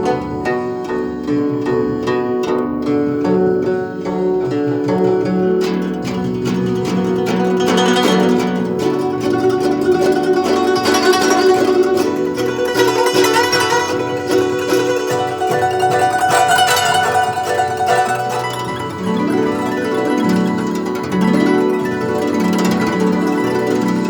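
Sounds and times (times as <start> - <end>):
zither plucked notes: 0.0 - 24.0.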